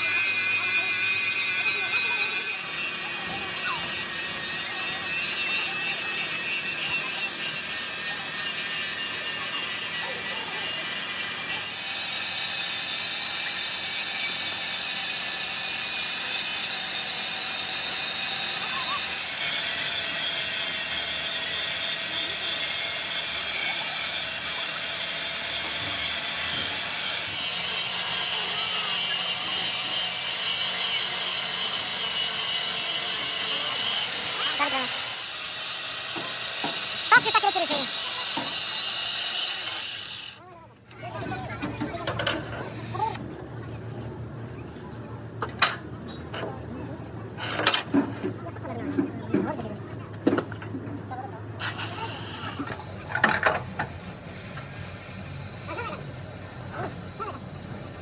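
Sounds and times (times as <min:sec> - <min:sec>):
grinding on sheet metal: 0:00.0 - 0:40.4.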